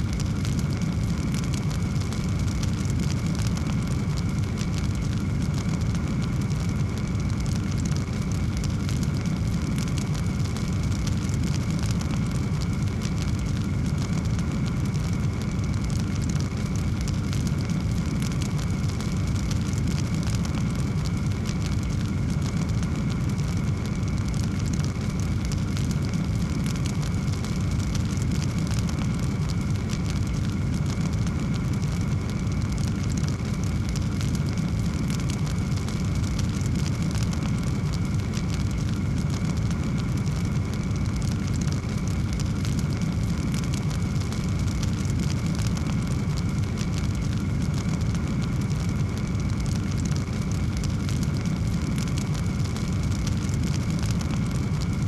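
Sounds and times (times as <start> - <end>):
fire crackling and popping: 0.0 - 55.0
fire roaring: 0.0 - 55.0.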